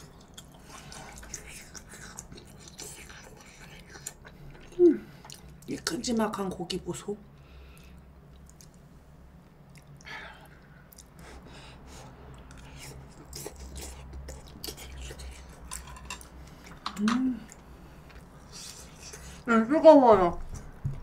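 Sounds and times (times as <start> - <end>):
chewing with wet clicks: 0.0 - 5.7, 7.7 - 11.2, 12.3 - 18.8
person humming: 4.8 - 5.1, 17.0 - 17.5
breaths: 7.4 - 8.1, 11.2 - 12.2.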